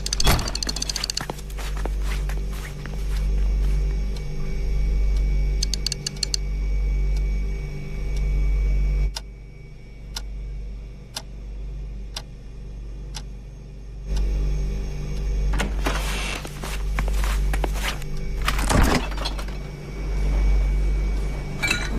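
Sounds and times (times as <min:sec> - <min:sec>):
sharp ticks: 0:00.0 - 0:01.6, 0:04.9 - 0:06.5, 0:10.1 - 0:10.3, 0:11.1 - 0:11.3, 0:13.1 - 0:13.3
low steady hum: 0:00.0 - 0:21.9.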